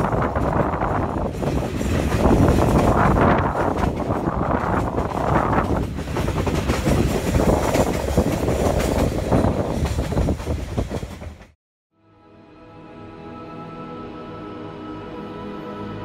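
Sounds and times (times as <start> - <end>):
train carriage rumbling: 0.0 - 11.6
wheels clattering on track: 0.0 - 11.6.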